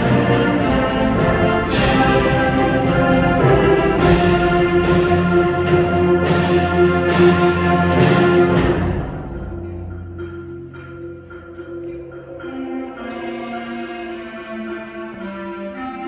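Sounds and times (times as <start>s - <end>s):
concert band playing: 0.0s - 10.4s
percussion strikes: 0.0s - 16.0s.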